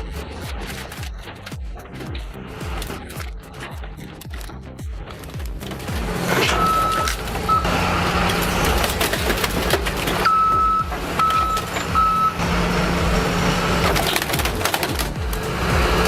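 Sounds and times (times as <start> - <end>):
scrap metal crushing: 0.0 - 16.0
loud diesel engine: 5.6 - 16.0
backup alarm beeping: 6.4 - 8.2, 10.2 - 13.0.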